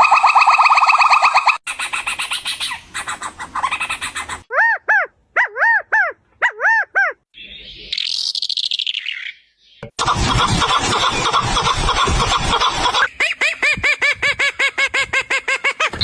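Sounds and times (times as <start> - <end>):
harsh pulsing bird call: 10.0 - 13.8.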